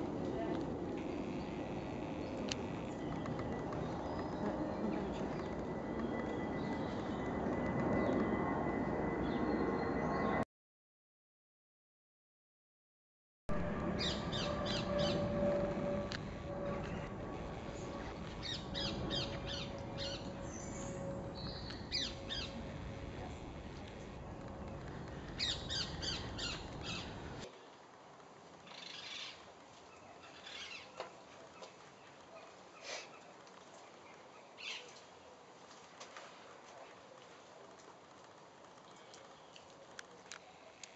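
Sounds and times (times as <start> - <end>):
low outdoor rumble: 0.0 - 8.6, 13.5 - 28.9
small birds chirping: 17.8 - 22.8, 25.0 - 27.4.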